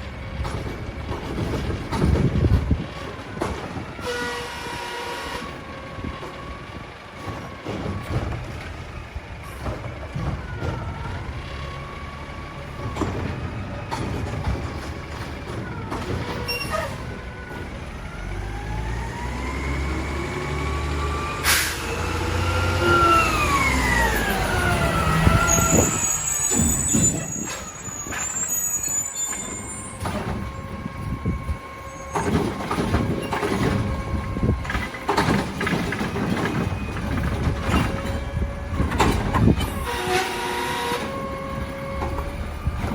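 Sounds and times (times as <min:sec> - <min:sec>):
garbage truck engine running: 0:00.0 - 0:42.9
high squeal: 0:16.3 - 0:17.1, 0:19.3 - 0:34.5.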